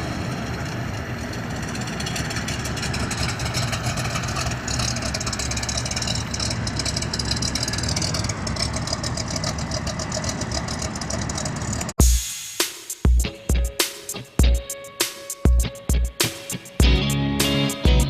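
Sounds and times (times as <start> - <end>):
car engine running: 0.0 - 12.0
fast fine ticking: 2.5 - 11.9.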